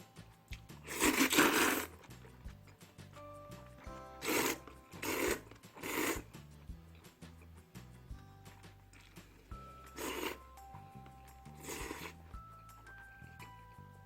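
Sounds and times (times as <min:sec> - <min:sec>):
soft background music: 0:00.0 - 0:14.0
person slurping noodles: 0:00.8 - 0:02.1, 0:04.0 - 0:06.4, 0:09.8 - 0:10.6, 0:11.4 - 0:12.3.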